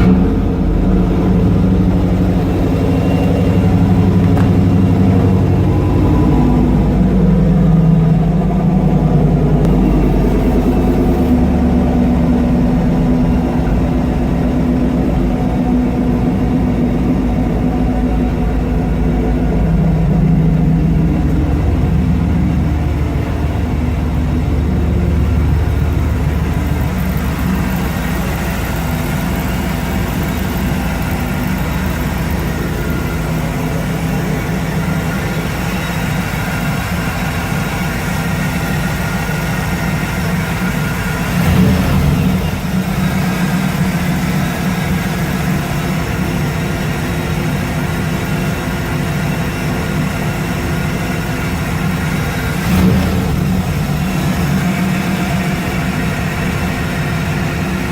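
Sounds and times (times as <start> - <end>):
car engine idling: 0.0 - 57.9.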